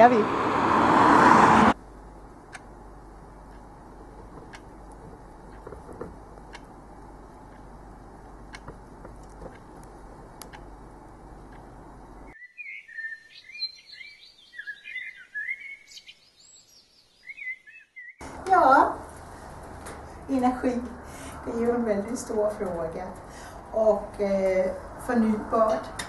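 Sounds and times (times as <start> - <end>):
faint clicks: 3.5 - 11.8
songbird chirping: 12.1 - 18.3.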